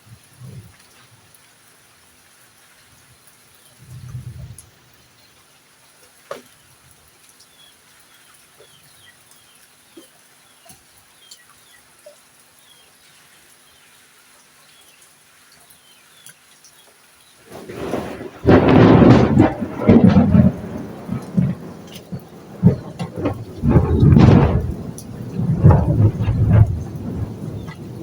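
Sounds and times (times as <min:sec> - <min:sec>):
heavy rain: 0:00.0 - 0:28.0
thunder rumble: 0:03.8 - 0:04.8, 0:17.5 - 0:28.0.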